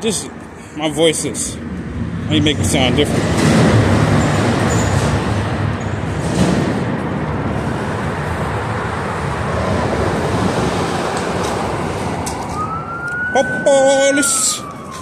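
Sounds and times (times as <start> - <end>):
passing road traffic: 0.0 - 15.0.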